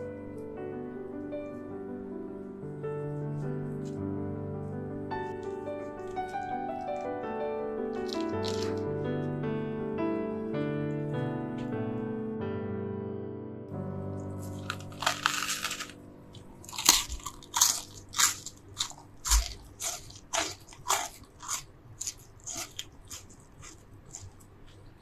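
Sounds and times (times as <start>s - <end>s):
soft piano music: 0.0s - 20.7s
chewing: 7.9s - 8.8s, 14.2s - 25.0s
crunchy bite: 7.9s - 8.8s, 14.4s - 25.0s.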